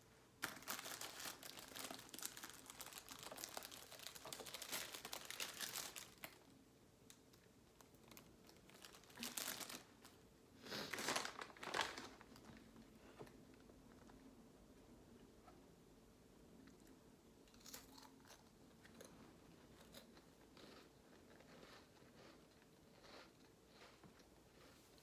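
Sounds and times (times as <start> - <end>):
plastic packaging crinkling: 0.4 - 6.5, 7.8 - 12.6.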